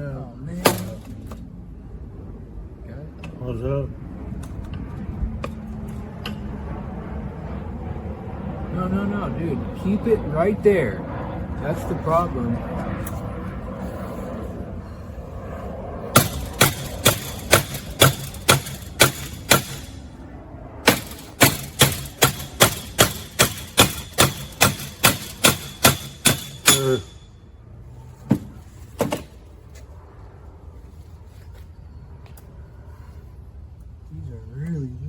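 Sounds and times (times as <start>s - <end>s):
hammer striking: 0.6s - 1.4s, 16.2s - 20.1s, 20.8s - 27.4s.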